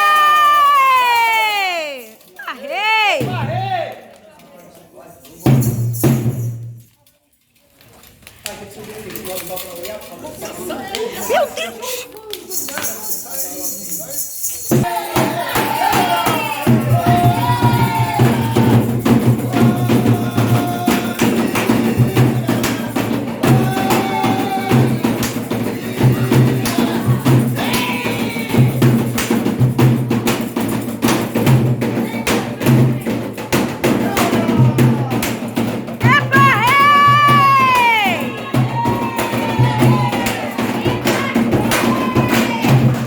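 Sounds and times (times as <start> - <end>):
hand drums and percussion: 0.0 - 3.7, 5.3 - 7.0, 10.8 - 43.0
voices singing: 14.7 - 29.3, 31.9 - 43.0.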